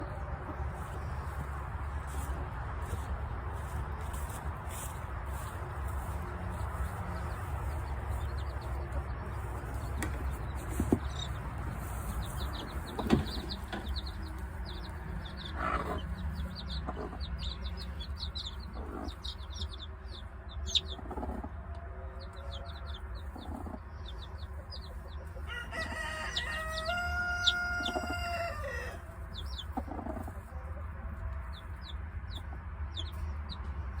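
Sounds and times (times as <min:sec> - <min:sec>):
chickens clucking: 0:00.0 - 0:34.0
small birds chirping: 0:00.8 - 0:30.6, 0:31.4 - 0:34.0
rooster crowing: 0:25.5 - 0:29.1.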